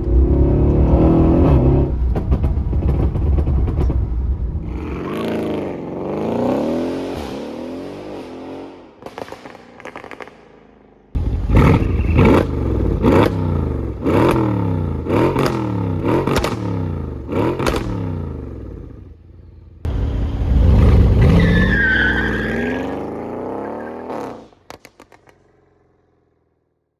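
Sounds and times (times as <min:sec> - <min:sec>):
car engine revving: 0:00.0 - 0:09.1, 0:11.2 - 0:19.1, 0:19.9 - 0:24.6
exhaust pops and crackles: 0:01.9 - 0:04.6, 0:09.0 - 0:10.6, 0:11.2 - 0:18.7, 0:24.5 - 0:25.8.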